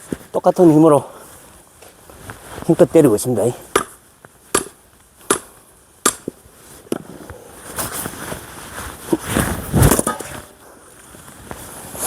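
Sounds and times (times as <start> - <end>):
axe striking log: 3.7 - 7.0.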